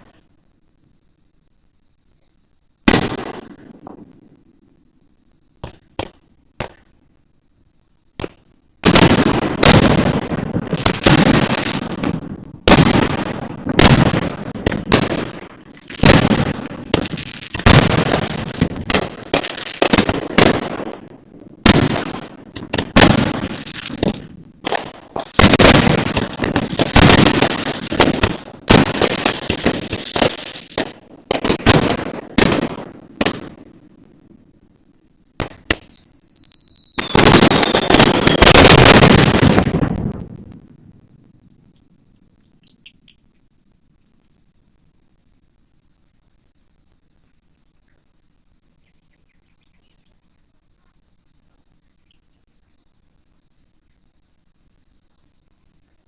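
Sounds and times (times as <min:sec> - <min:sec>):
fireworks bangs: 0:02.8 - 0:04.3, 0:05.6 - 0:06.9, 0:08.2 - 0:34.5, 0:35.3 - 0:41.5
small firework crackles: 0:02.8 - 0:04.8, 0:08.1 - 0:45.4.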